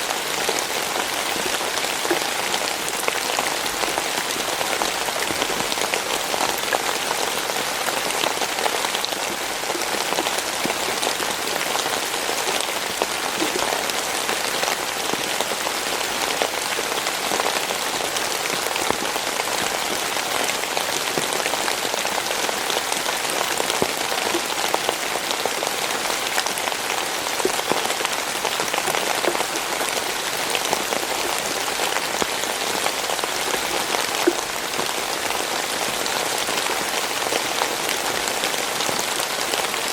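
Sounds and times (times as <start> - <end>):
steady rainfall: 0.0 - 39.9
raindrops ticking: 0.4 - 14.8, 27.4 - 32.3, 34.1 - 35.0.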